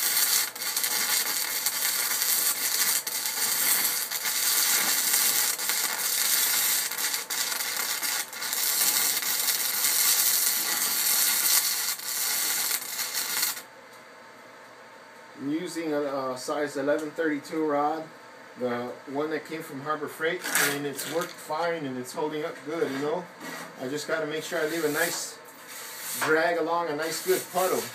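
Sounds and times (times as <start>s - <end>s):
arc welder crackling hiss: 0.0s - 13.7s, 20.4s - 21.6s, 23.8s - 27.9s.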